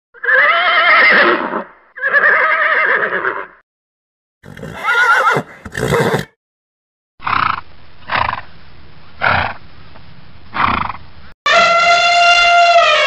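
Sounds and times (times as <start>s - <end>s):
horse whinnying: 0.2s - 3.6s, 4.4s - 6.4s.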